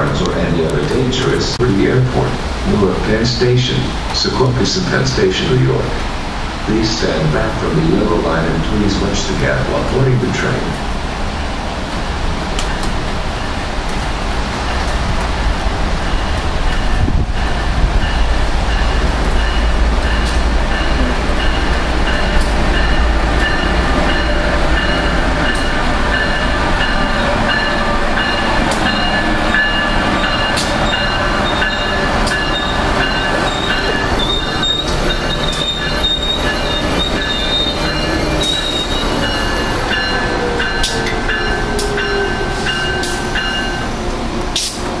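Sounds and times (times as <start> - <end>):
train rumble: 0.0 - 45.0
wheel and brake squeal: 30.8 - 43.1.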